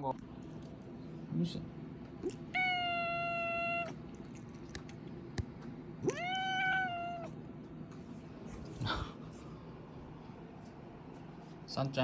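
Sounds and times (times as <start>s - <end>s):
cat meowing: 2.2s - 4.0s, 6.0s - 7.4s.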